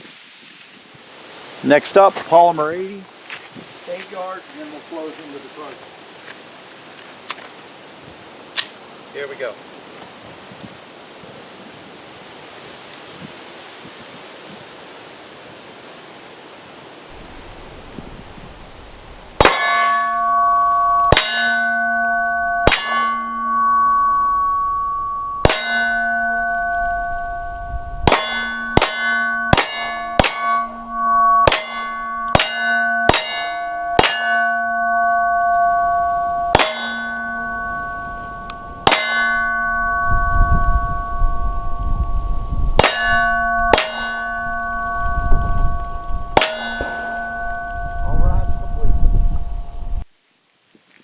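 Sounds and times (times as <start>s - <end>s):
steel target ringing: 18.7s - 50.0s.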